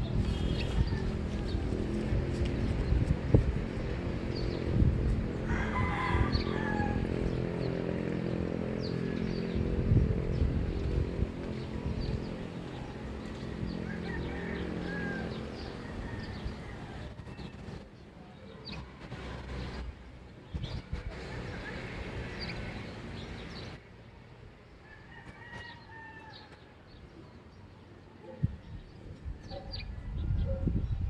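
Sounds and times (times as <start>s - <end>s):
vehicle engine passing: 0.0s - 23.9s
birds chirping: 0.0s - 31.0s.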